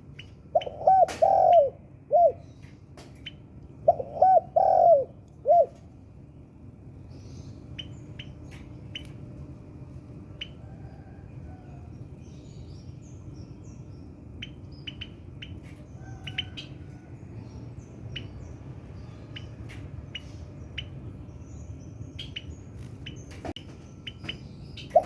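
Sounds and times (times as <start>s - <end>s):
steady low hum: 0.0s - 25.0s
faint bird chirps: 13.7s - 17.1s.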